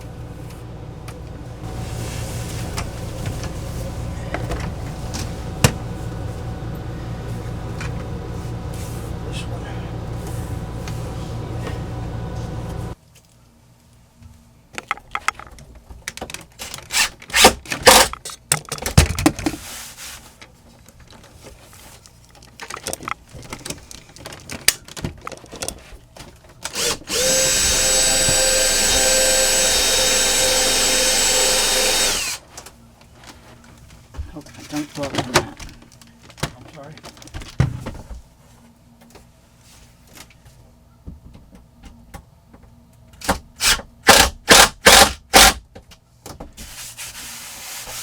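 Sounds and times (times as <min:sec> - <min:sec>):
steady low hum: 0:00.0 - 0:14.7
power drill driving screw into wood: 0:16.9 - 0:18.1, 0:26.7 - 0:32.4, 0:43.6 - 0:45.6.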